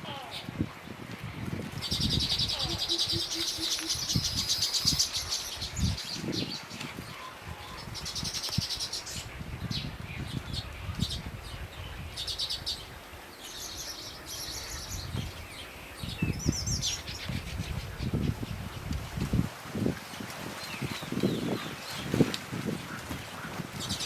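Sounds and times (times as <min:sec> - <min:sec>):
small songbird chirping: 0:01.8 - 0:18.5.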